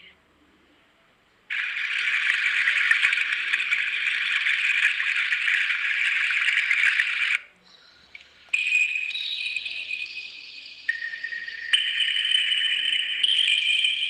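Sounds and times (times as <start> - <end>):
high-pitched insect trill: 8.6 - 14.0.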